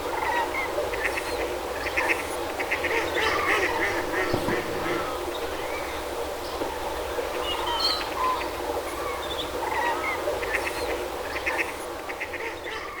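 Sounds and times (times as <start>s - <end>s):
water rushing through sluice: 2.8s - 9.4s.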